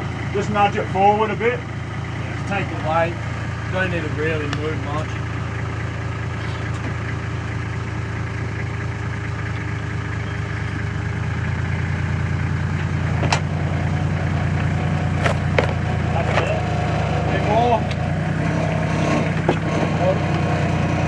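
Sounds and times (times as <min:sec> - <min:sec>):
sharp knock: 0:15.2 - 0:15.6.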